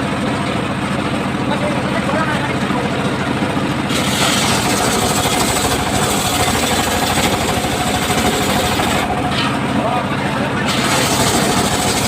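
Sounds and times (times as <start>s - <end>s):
engine driving saw: 0.0s - 12.0s
circular saw cutting timber: 3.9s - 12.0s.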